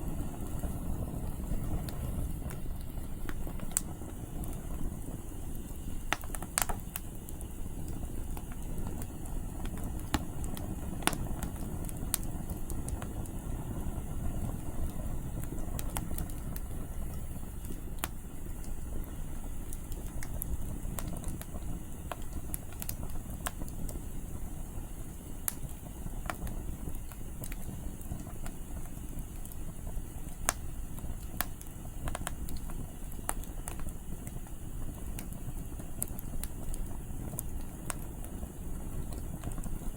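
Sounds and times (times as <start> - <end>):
low rumble of wind: 0.0 - 28.6
campfire crackling and popping: 0.0 - 39.9.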